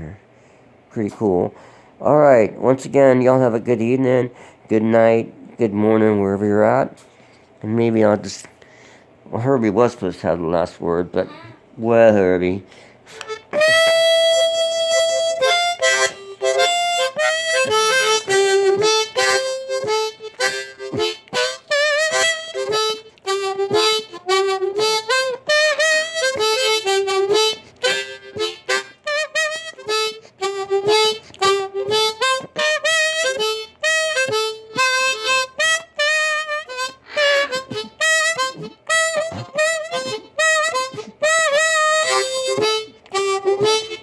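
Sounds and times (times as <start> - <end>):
blues harmonica solo: 12.7 - 44.0.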